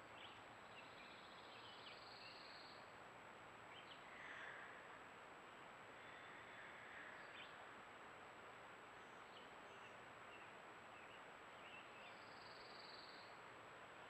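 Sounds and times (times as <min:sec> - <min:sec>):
faint outdoor background hiss: 0:00.0 - 0:14.0
faint bird chirps: 0:00.1 - 0:02.9, 0:09.0 - 0:13.4.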